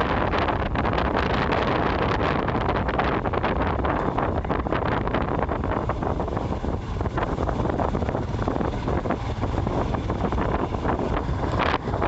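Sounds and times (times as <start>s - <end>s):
motorcycle running noise: 0.0s - 12.0s
wind rushing over microphone: 0.0s - 12.0s.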